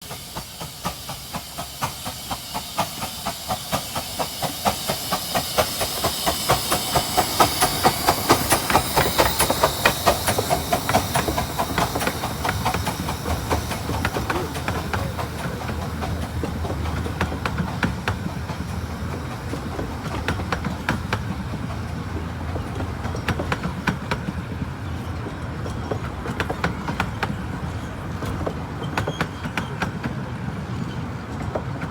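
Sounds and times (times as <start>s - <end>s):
steam hissing: 0.0s - 25.0s
train wheels clicking over rail joints: 0.0s - 31.9s.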